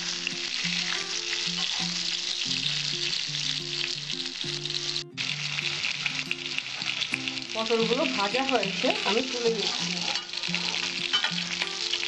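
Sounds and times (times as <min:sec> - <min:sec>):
soft background tune: 0:00.0 - 0:12.0
vegetables sizzling in oil: 0:00.0 - 0:12.0
metal spatula stirring: 0:09.2 - 0:11.6.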